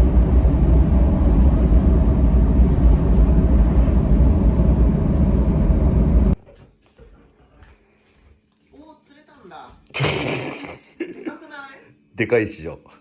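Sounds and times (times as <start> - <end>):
vehicle engine and road noise: 0.0 - 6.4.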